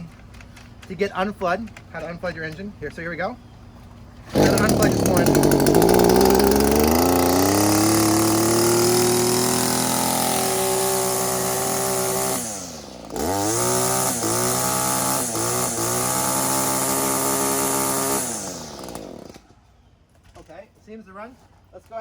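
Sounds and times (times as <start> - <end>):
string trimmer engine running: 4.3 - 19.5.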